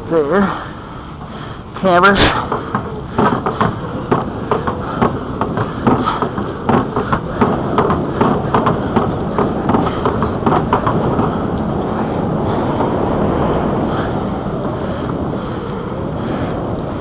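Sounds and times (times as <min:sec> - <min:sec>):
wind on microphone: 0:01.6 - 0:17.0
bike rattling knocks: 0:02.4 - 0:12.5
bicycle rolling on trail: 0:02.4 - 0:17.0.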